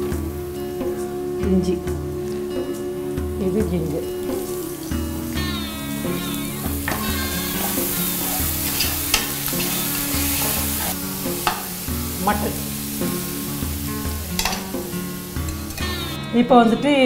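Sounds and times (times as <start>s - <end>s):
background music with bass: 0.0s - 17.0s
paste sizzling in oil: 4.0s - 16.2s
ladle scraping pot: 4.2s - 16.2s.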